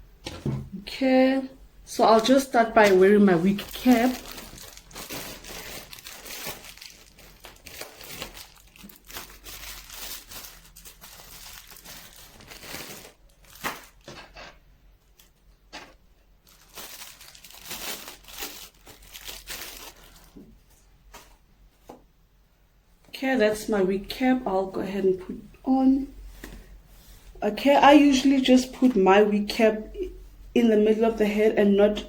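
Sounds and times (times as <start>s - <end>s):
wig cap crinkling and rustling: 2.1s - 22.0s.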